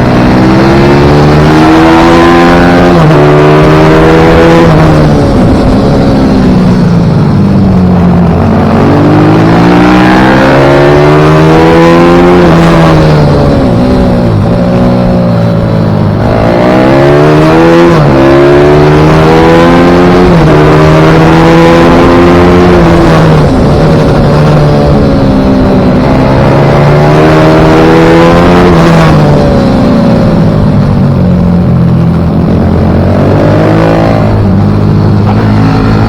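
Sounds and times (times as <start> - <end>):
pit bike engine revving: 0.0 - 14.8, 32.0 - 36.0.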